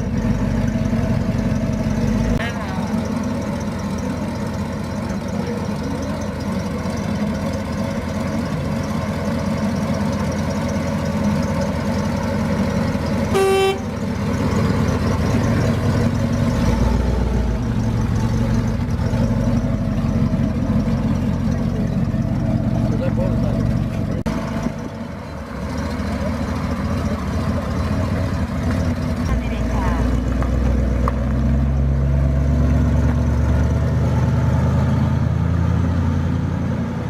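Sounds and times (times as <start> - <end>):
car engine idling: 0.0 - 34.8
car horn toot: 13.3 - 14.0.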